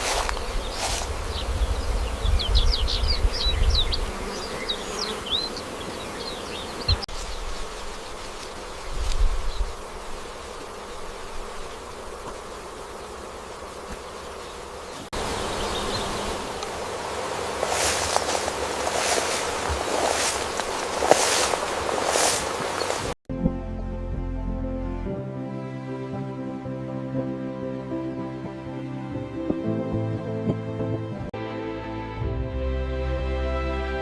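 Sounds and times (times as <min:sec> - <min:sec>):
insects buzzing: 0:00.0 - 0:23.2.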